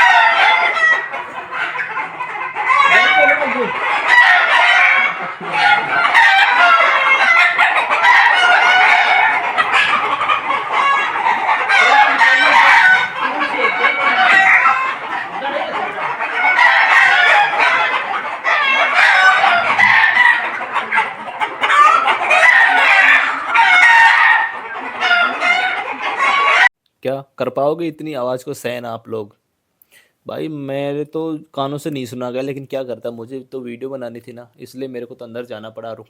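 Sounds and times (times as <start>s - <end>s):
chickens clucking: 0.0s - 26.7s
roosters crowing: 0.0s - 26.7s.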